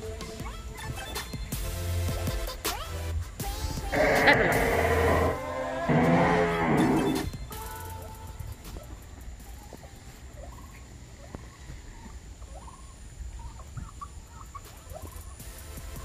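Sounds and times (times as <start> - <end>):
birds chirping: 3.8 - 16.0.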